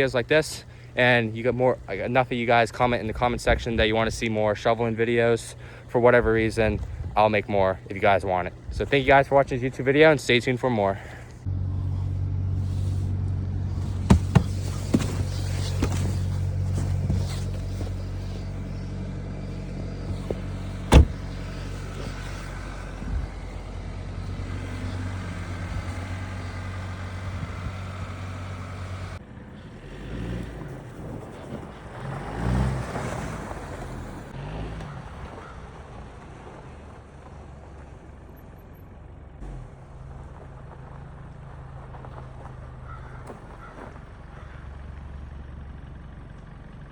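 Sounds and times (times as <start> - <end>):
car engine running: 0.0 - 32.8, 33.4 - 46.9.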